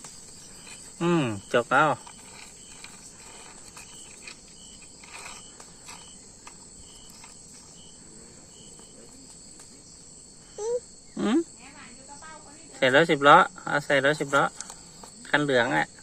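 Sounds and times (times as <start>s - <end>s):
insects chirping: 0.0s - 16.0s
faint scrapes: 0.4s - 9.2s.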